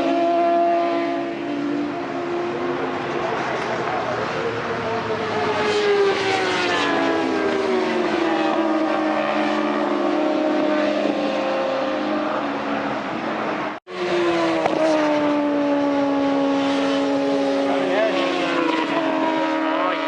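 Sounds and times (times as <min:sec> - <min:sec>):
racing motorcycle engines high revs: 0:00.0 - 0:20.0.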